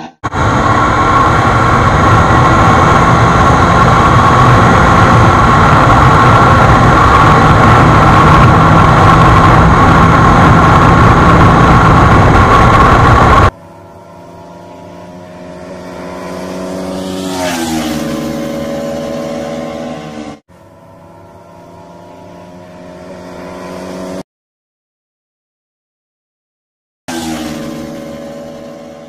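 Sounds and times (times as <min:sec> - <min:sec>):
heavy rushing noise: 0:00.0 - 0:20.4
motorcycle engine drone: 0:00.0 - 0:24.2, 0:27.1 - 0:29.0.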